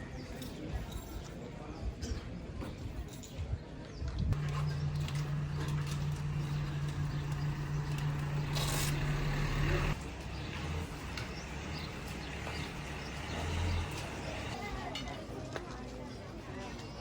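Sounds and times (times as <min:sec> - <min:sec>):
vehicle engine idling: 0:04.4 - 0:14.5.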